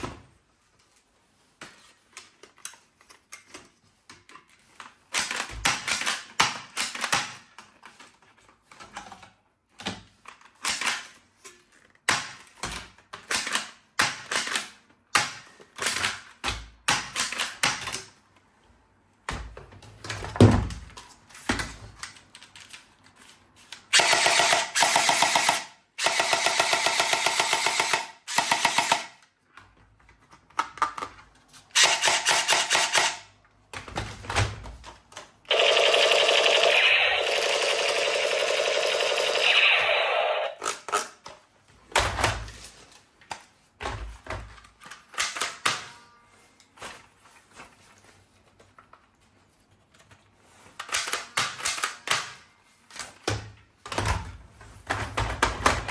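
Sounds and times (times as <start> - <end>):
toy gun clicks and rattles: 10.4 - 11.2, 13.2 - 16.3, 23.8 - 29.3, 31.7 - 33.3, 35.5 - 41.2, 44.9 - 45.9, 50.8 - 52.4
rapid machine-gun rattles: 35.5 - 39.6.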